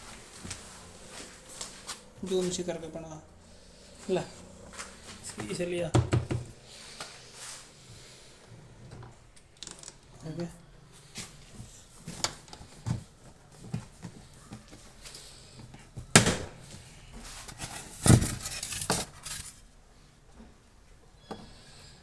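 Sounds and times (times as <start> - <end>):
hard objects knocking: 5.3 - 6.5
loud knocks and rattles: 5.9 - 6.5.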